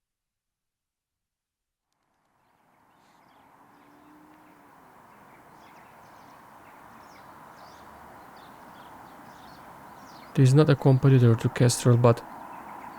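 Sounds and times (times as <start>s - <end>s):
small birds chirping: 2.5s - 12.9s
steady background hiss: 2.6s - 12.9s.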